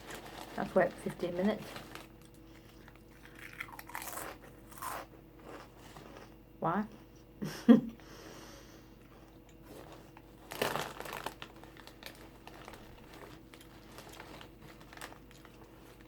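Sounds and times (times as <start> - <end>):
plastic packaging crinkling: 0.0 - 4.4, 9.6 - 16.0.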